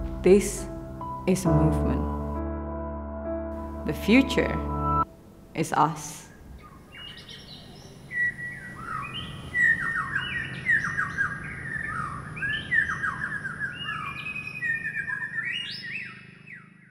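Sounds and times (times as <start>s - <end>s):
steady low hum: 0.0s - 6.6s
bird chirping: 6.3s - 16.9s.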